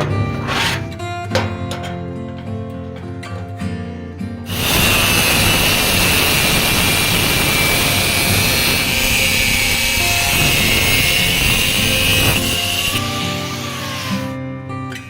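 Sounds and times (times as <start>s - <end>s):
guitar music: 0.0s - 15.0s
power tool grinding with whine: 4.5s - 14.4s.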